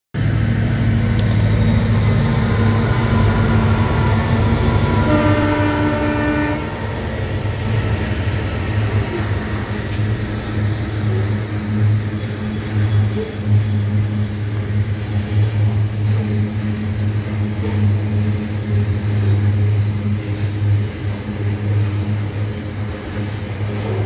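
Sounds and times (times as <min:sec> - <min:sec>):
locomotive engines humming: 0:00.2 - 0:24.0
train horn: 0:02.5 - 0:07.1.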